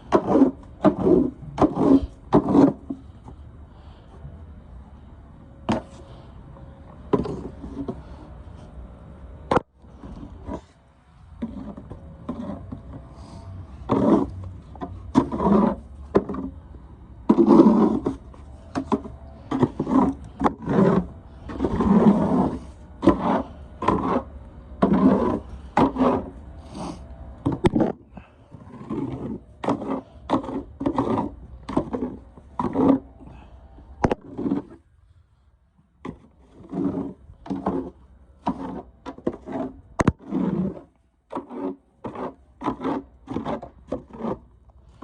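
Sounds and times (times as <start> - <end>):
snow shovel scraping snow: 0.0 - 3.2, 11.4 - 14.4, 15.0 - 16.6, 17.3 - 34.8, 36.1 - 44.5.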